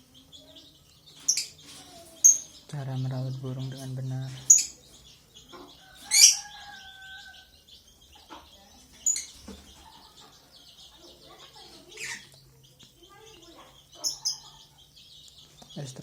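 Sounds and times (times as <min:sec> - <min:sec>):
soft bird twittering: 0:00.0 - 0:16.0.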